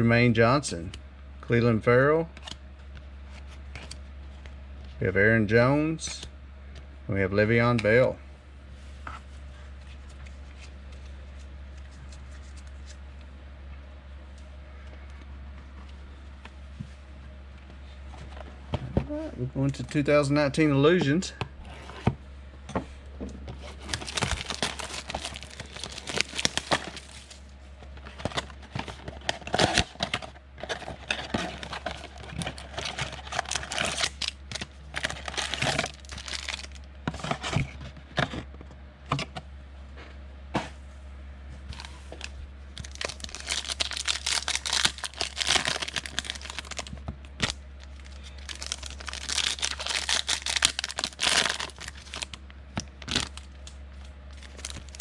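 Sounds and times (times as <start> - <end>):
low electrical hum: 0.0 - 55.0
wrappers tearing and crinkling: 23.6 - 27.5, 28.1 - 37.4, 41.7 - 53.7, 54.3 - 55.0.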